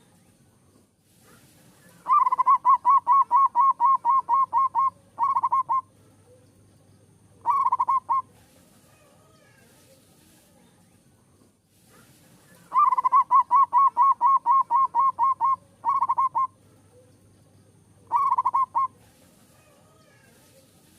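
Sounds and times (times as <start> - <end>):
dove cooing: 1.9 - 6.4, 7.4 - 9.4, 12.6 - 17.2, 18.0 - 20.3.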